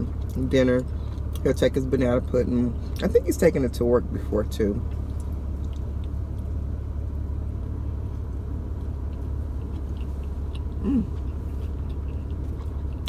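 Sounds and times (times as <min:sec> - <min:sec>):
chewing a sandwich: 0:00.0 - 0:01.7, 0:04.8 - 0:06.6, 0:08.0 - 0:13.0
person humming: 0:10.8 - 0:11.2.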